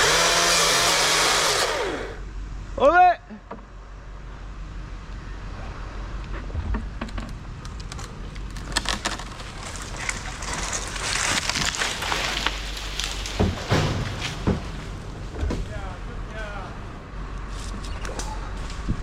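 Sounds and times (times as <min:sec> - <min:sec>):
truck engine humming: 0:00.0 - 0:02.8, 0:03.5 - 0:18.9
crackling and rustling: 0:06.2 - 0:16.6
sharp cracks: 0:07.6 - 0:14.7.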